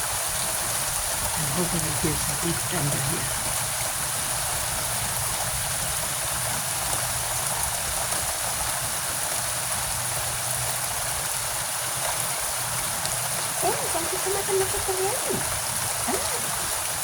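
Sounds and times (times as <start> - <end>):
heavy rain falling: 0.0 - 17.0
water rushing from gutter: 0.0 - 17.0.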